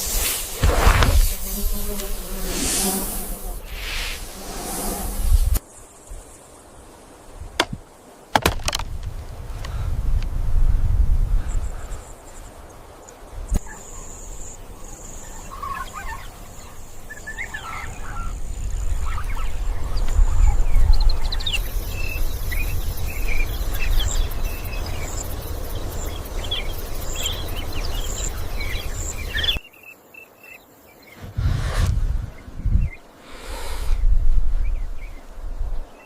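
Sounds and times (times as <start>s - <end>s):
low rumble: 31.2s - 33.0s.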